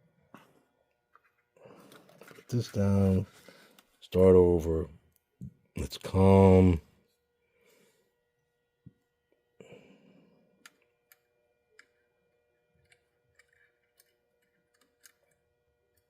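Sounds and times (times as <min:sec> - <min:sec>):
faint steady hum: 0:00.0 - 0:16.0
small parts clicking and tapping: 0:10.6 - 0:12.0, 0:12.8 - 0:16.0.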